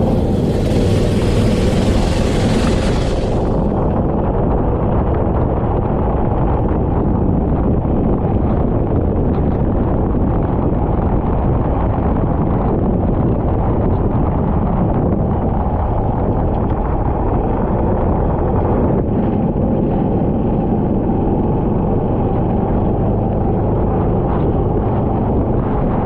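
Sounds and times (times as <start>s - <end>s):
kart engine running: 0.0s - 4.2s
wind rumble on microphone: 0.0s - 26.0s.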